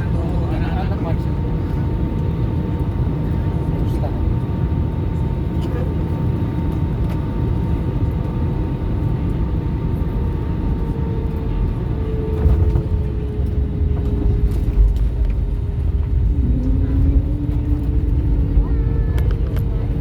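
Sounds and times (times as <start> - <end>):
vehicle engine rumble from inside: 0.0 - 20.0
lower hum: 6.4 - 20.0.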